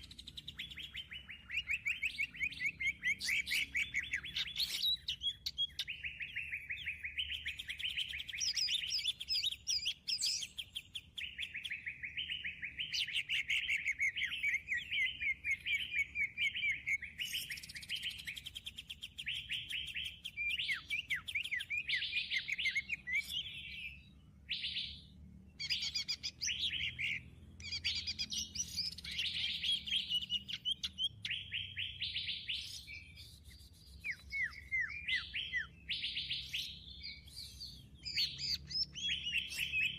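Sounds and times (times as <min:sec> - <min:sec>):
rapid bird chirping and trills: 0:00.0 - 0:39.9.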